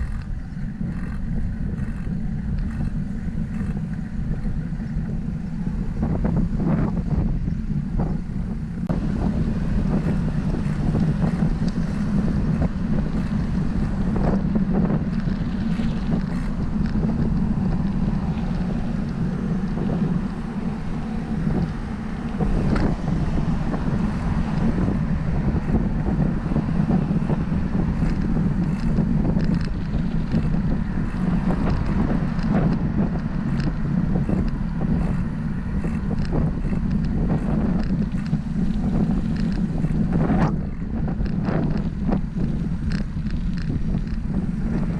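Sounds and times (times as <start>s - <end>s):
wind rumbling on microphone: 0.0s - 44.9s
faint clicks and rattles: 21.3s - 44.9s.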